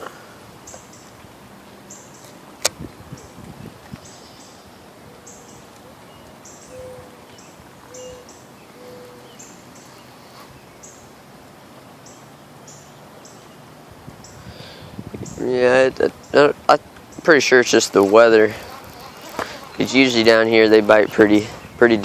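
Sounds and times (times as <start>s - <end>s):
steady outdoor hiss: 0.0s - 22.0s
bird hooting call: 4.0s - 10.0s
high chirping: 18.6s - 21.9s.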